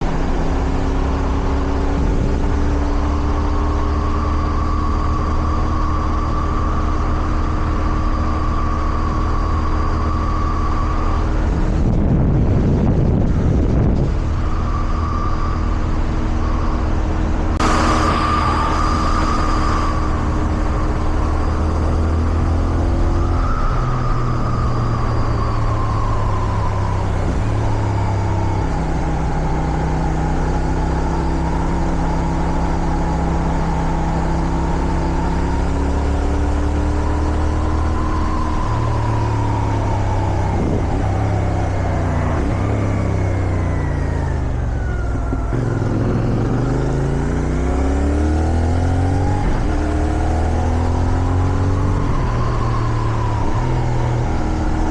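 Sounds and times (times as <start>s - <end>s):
wind noise on microphone: 0.0s - 54.9s
motorcycle engine running: 45.1s - 48.0s.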